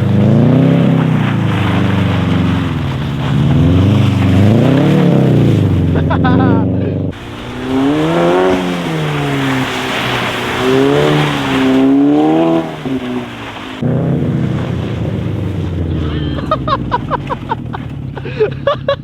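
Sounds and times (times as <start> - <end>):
car engine revving: 0.0 - 19.0
rushing noise: 7.2 - 16.5.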